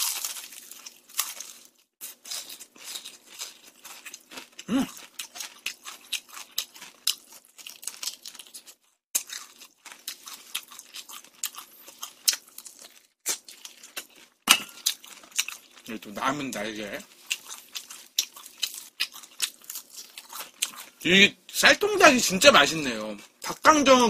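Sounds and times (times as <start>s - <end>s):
crunching fried chicken crust: 0.0s - 21.1s.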